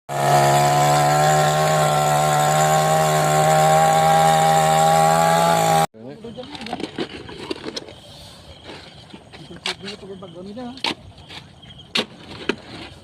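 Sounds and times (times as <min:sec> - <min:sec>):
small engine running at high speed: 0:00.1 - 0:05.9.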